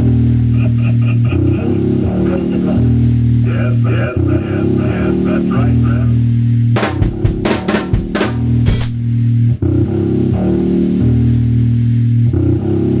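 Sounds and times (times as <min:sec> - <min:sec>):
drum kit playing: 0:06.8 - 0:09.2.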